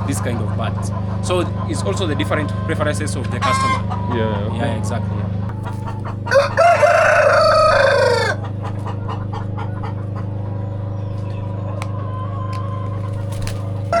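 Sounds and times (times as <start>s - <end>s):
chicken calls: 0.0s - 14.0s
steady low hum: 0.0s - 14.0s
rooster crowing: 6.1s - 8.5s, 12.0s - 14.0s.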